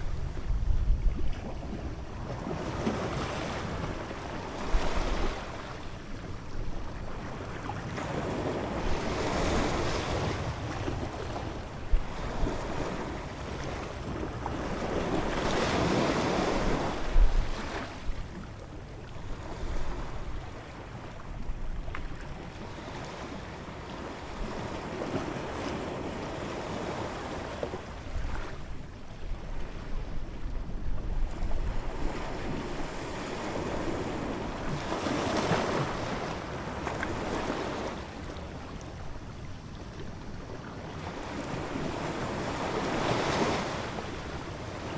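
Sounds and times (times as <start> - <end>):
wind rumbling on microphone: 0.0 - 22.4, 27.9 - 36.2.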